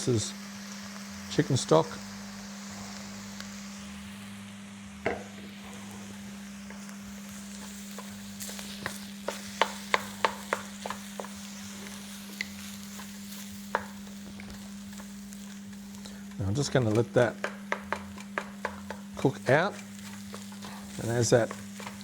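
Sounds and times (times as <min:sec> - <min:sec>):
food sizzling in a pan: 0:00.0 - 0:22.0
utensil clicking against pan: 0:07.6 - 0:22.0.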